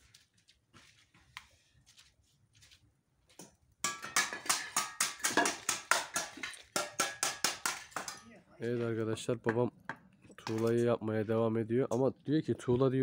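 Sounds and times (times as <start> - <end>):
metal tool striking brick: 3.8 - 8.3.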